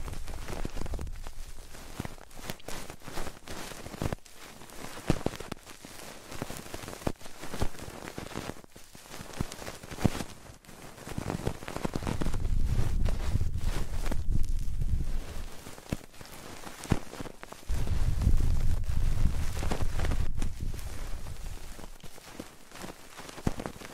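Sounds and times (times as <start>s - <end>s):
low rumble: 17.7s - 21.6s
fingertips tapping on microphone: 17.7s - 22.2s.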